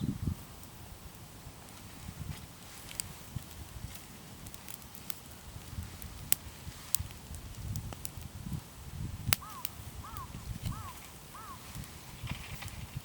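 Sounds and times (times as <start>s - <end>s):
wood fire crackling and popping: 0.2s - 13.0s
bird calling: 9.4s - 11.7s.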